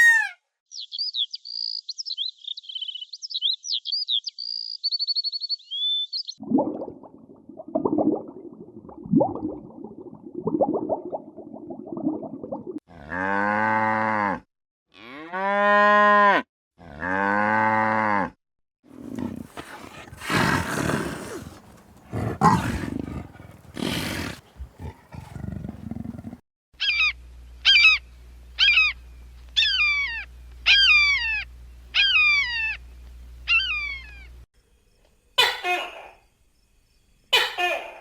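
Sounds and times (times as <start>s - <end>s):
rough breathy bellowing calls: 18.9s - 26.4s
cow mooing: 19.0s - 26.4s.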